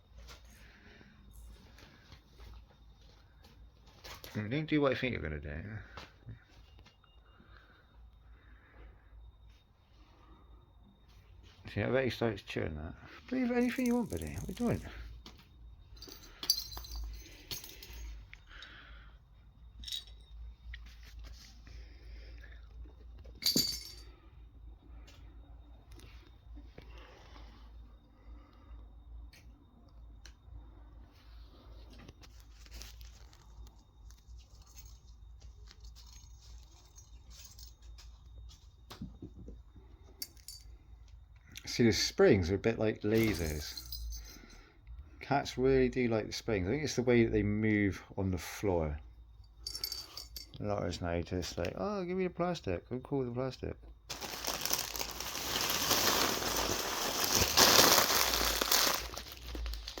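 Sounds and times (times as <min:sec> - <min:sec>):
plastic bag crinkling: 0:54.1 - 1:00.0.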